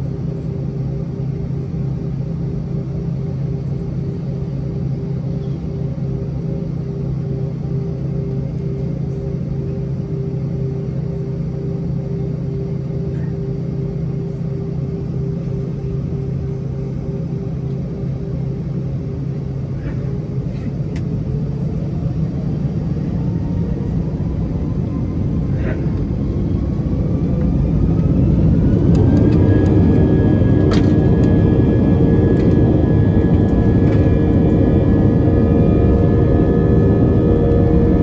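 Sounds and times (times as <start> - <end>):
cabin rumble: 12.8 - 38.0
jet engines spooling up: 17.2 - 38.0.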